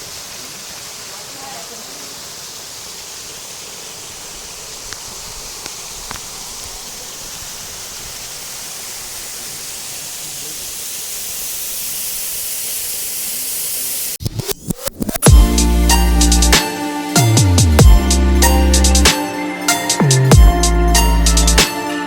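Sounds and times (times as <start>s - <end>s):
water rushing: 0.0s - 14.2s.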